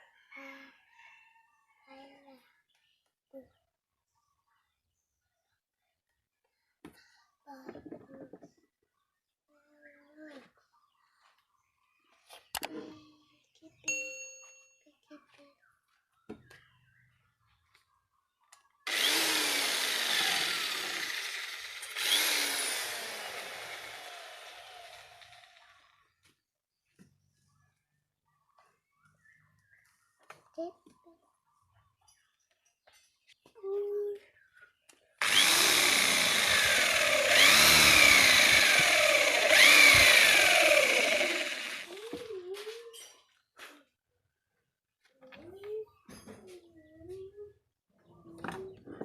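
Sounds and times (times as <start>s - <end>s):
mini drill motor cutting plastic: 18.9s - 25.9s, 35.2s - 42.3s
power tool grinding: 18.9s - 25.9s, 35.2s - 42.3s.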